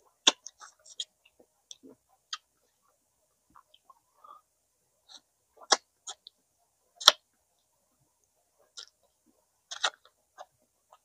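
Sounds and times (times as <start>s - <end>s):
wet mouth clicks and smacks: 9.7s - 10.1s.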